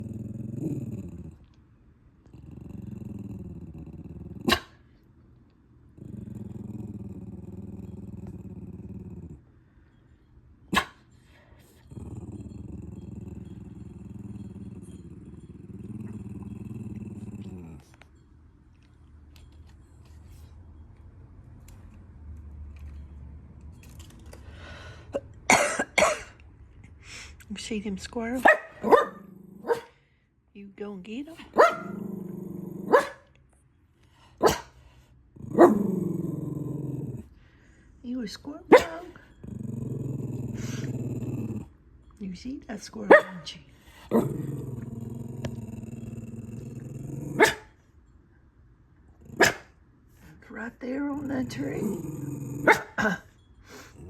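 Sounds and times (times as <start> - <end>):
dog growling: 0.0 - 1.6, 2.2 - 4.8, 5.9 - 9.5, 11.8 - 18.1, 28.4 - 30.0, 31.4 - 33.3, 35.3 - 37.7, 38.7 - 41.8, 43.9 - 47.7, 49.1 - 54.0
low steady hum: 0.0 - 54.0
dog barking: 4.5 - 4.8, 10.7 - 11.0, 28.4 - 30.0, 31.5 - 32.0, 32.9 - 33.3, 34.4 - 34.8, 38.7 - 39.1, 43.1 - 43.5, 47.4 - 47.7, 49.4 - 49.7, 52.6 - 53.2.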